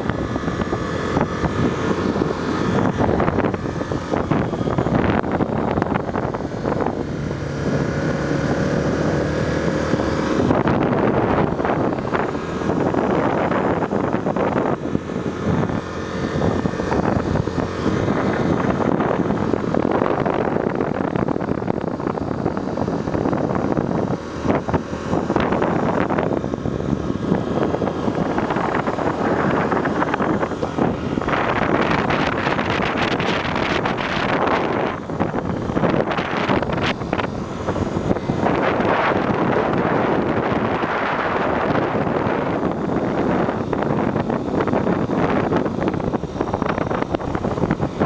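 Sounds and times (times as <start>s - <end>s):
motorcycle engine running: 0.0s - 48.0s
wind rushing over microphone: 0.0s - 48.0s.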